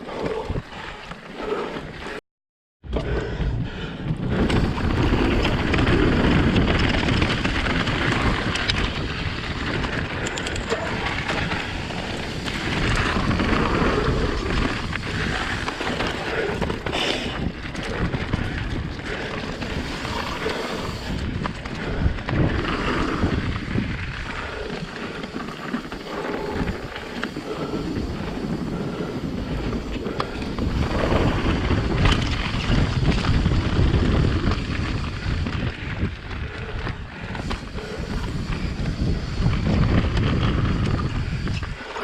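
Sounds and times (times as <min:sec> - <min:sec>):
wind buffeting microphone: 0:02.8 - 0:42.0
tyres rumbling on dirt: 0:04.2 - 0:36.8.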